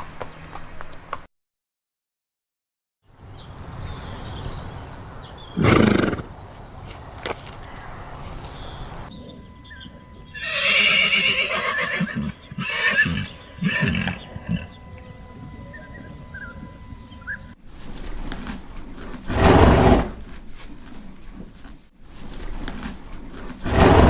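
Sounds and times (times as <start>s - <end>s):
horse blowing: 5.5s - 6.4s, 9.2s - 17.5s, 19.2s - 20.3s, 23.6s - 24.0s
horse whinnying: 5.6s - 6.3s, 9.7s - 14.9s.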